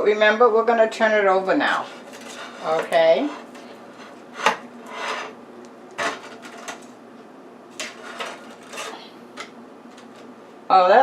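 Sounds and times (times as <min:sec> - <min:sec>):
utensils scraping on a rack: 0:01.6 - 0:05.4, 0:06.0 - 0:06.9, 0:07.8 - 0:09.2.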